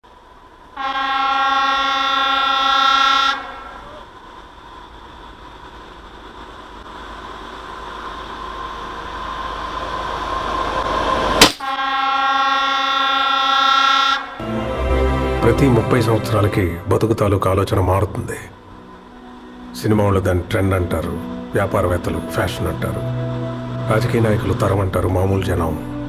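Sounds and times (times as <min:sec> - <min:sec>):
train horn blast: 0:00.8 - 0:03.8, 0:11.8 - 0:17.1.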